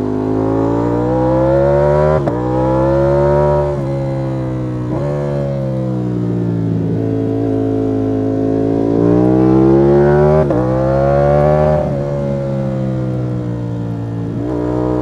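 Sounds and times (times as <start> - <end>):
motorcycle engine accelerating hard: 0.0 - 15.0.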